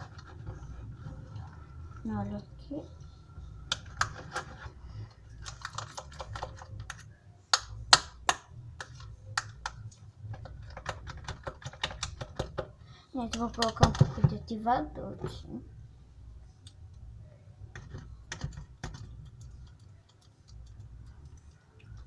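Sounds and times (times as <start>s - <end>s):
sticky slime clicking and popping: 5.4s - 12.6s.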